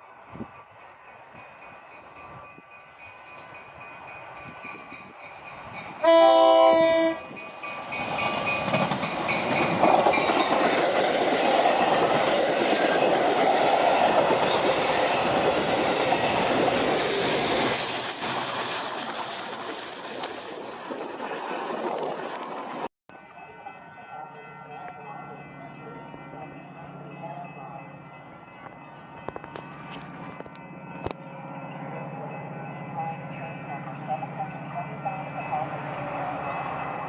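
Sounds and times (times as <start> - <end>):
train wheels on rails: 0.0 - 22.9
locomotive air horn blast: 6.0 - 7.3.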